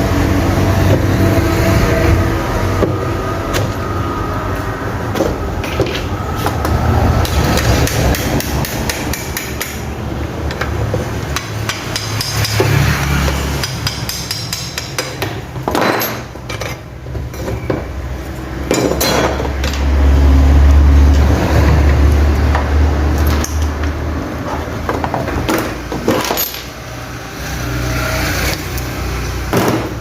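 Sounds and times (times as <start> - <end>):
hammer tapping on metal: 7.2 - 9.9, 11.3 - 15.5.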